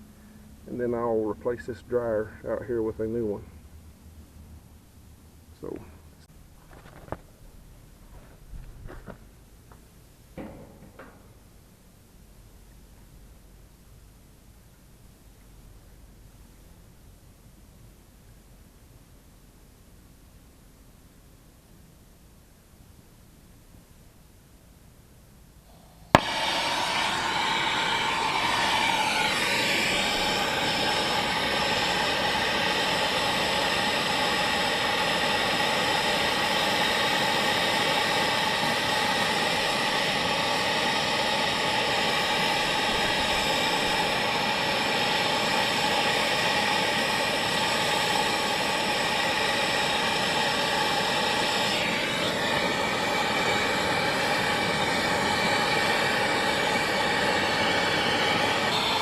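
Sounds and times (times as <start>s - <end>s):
torch flame hissing roar: 25.7s - 59.0s
torch igniter click: 26.1s - 40.0s.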